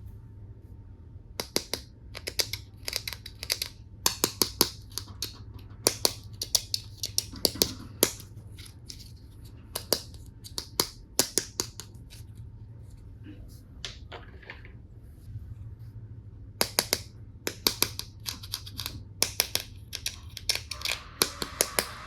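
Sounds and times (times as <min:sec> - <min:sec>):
plastic toy pieces clicking: 0:01.4 - 0:08.2, 0:16.6 - 0:21.8.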